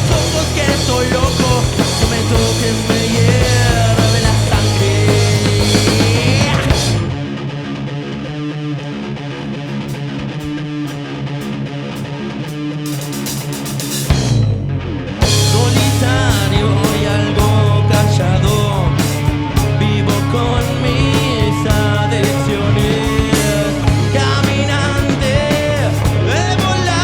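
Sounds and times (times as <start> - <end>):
person singing: 0.0 - 7.0, 15.4 - 27.0
live rock band playing: 0.0 - 7.6, 9.5 - 27.0
electric guitar: 0.0 - 27.0.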